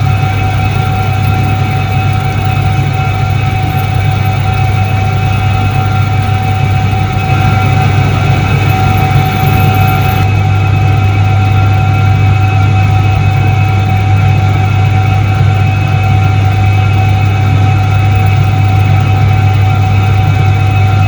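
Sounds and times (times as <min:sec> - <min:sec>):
washing machine motor humming: 0:00.0 - 0:12.0
high motor whine: 0:00.0 - 0:21.0.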